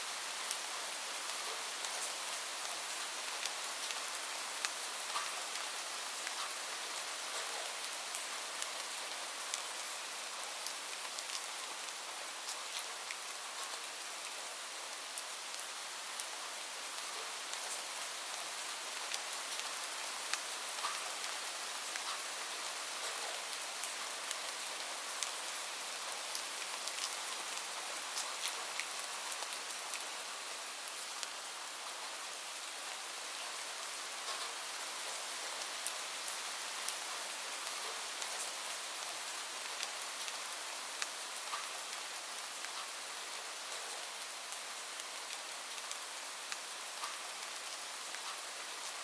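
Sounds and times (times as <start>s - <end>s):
steady rain falling: 0.0s - 49.0s
raindrops ticking on a surface: 0.2s - 49.0s.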